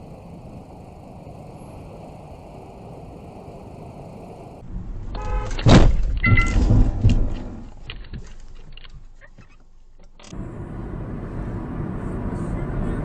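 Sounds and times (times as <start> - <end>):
vehicle crash: 4.6 - 9.5.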